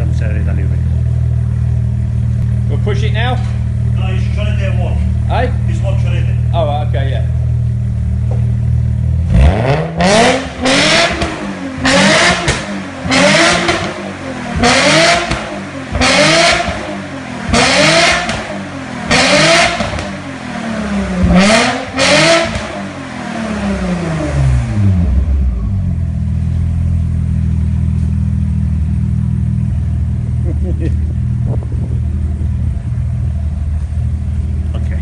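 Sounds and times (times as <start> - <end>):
car engine revving from idle: 7.6 - 26.4.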